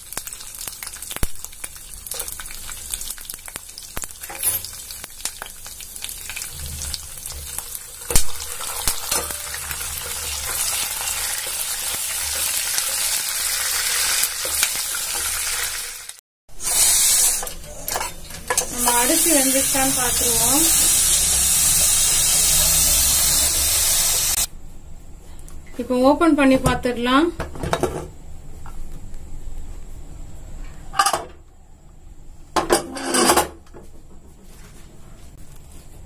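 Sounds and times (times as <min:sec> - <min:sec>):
food sizzling in ghee: 0:00.0 - 0:24.5
loud hiss: 0:16.6 - 0:17.4, 0:18.7 - 0:24.5.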